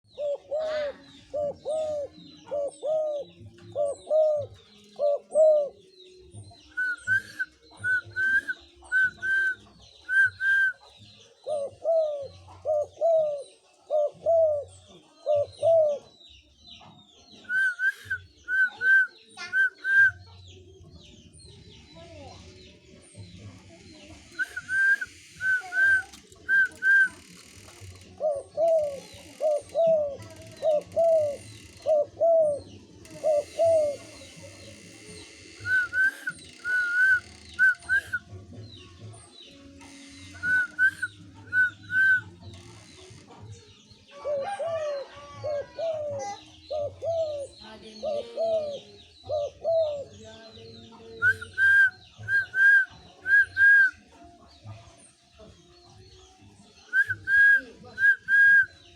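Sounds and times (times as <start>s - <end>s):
dove cooing: 0.0s - 5.9s, 6.7s - 16.2s, 28.0s - 34.7s, 44.1s - 50.2s.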